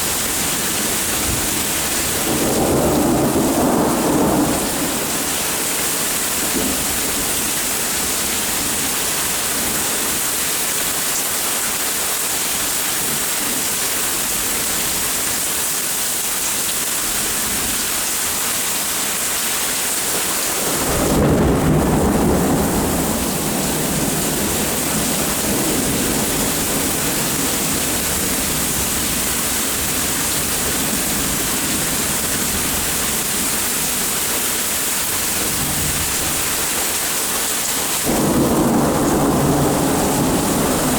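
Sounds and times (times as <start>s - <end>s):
thunder rumbling: 0.0s - 8.8s, 20.6s - 33.0s, 38.0s - 40.9s
heavy rain: 0.0s - 40.9s.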